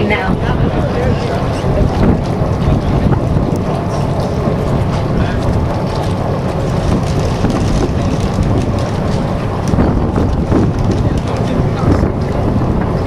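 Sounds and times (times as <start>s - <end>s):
boat engine running: 0.0s - 13.0s
wind buffeting microphone: 0.0s - 13.0s.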